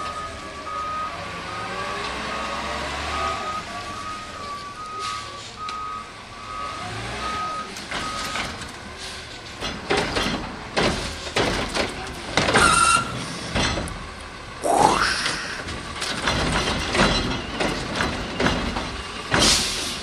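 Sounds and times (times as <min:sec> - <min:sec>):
garbage truck reversing beeper: 0:00.0 - 0:08.6, 0:12.6 - 0:13.2
metallic clanks and bangs: 0:07.8 - 0:14.2, 0:15.6 - 0:20.0.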